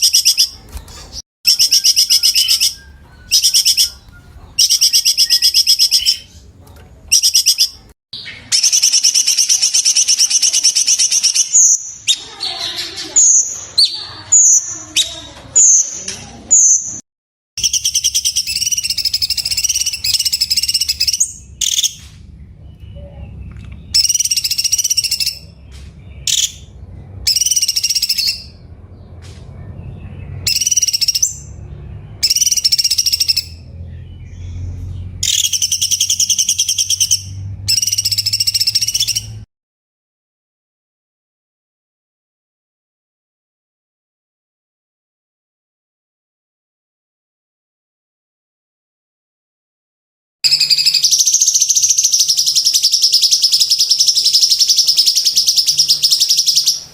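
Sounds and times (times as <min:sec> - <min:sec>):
bulbul singing: 0:00.0 - 0:17.0, 0:17.6 - 0:39.4, 0:50.5 - 0:56.9.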